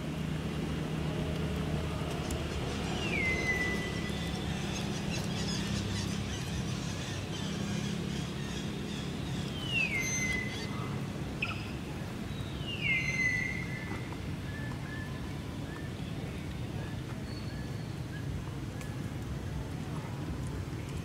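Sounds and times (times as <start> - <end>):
bird whistled call: 9.6 - 10.7, 12.7 - 15.1.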